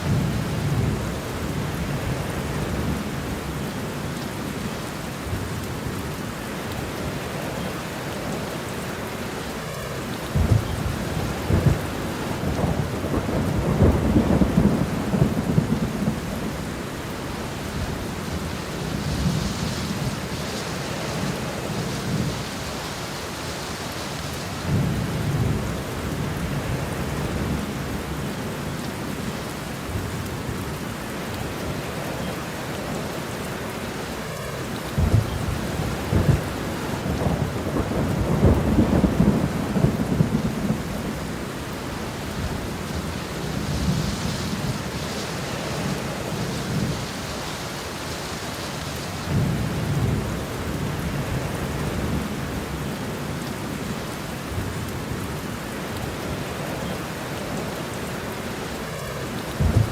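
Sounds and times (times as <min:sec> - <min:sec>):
rain falling: 0:00.0 - 0:59.9
thunder rumbling: 0:10.2 - 0:29.3, 0:34.4 - 0:53.0, 0:59.0 - 0:59.9.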